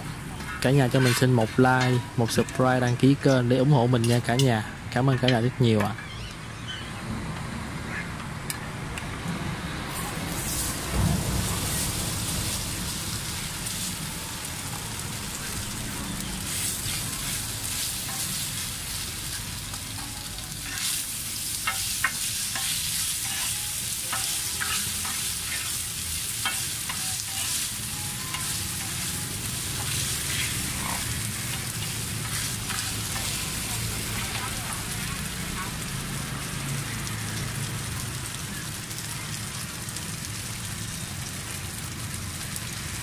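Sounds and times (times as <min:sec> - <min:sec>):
food sizzling in hot oil: 0:09.9 - 0:43.0.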